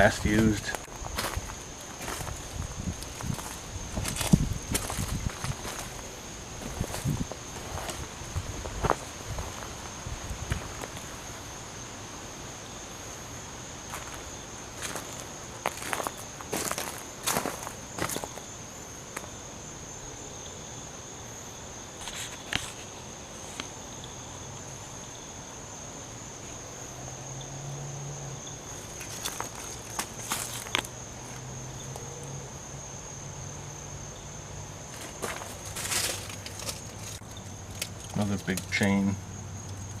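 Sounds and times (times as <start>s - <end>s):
footsteps: 0.0s - 11.1s, 13.9s - 18.4s, 28.8s - 31.4s, 34.9s - 37.2s
insects trilling: 0.0s - 40.0s.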